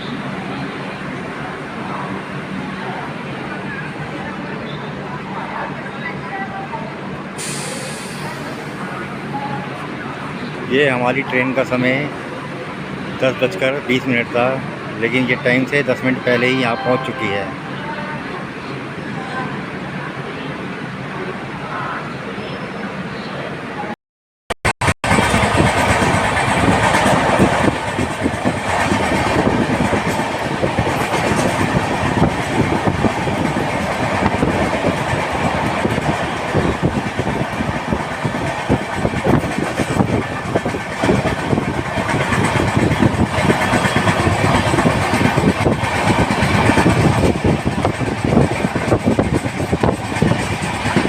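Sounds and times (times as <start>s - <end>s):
train wheels rumbling: 25.0s - 51.0s.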